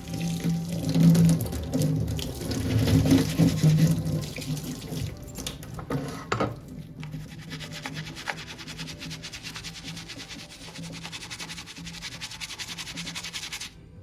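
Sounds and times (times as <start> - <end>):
tap running into sink: 0.9 - 7.2.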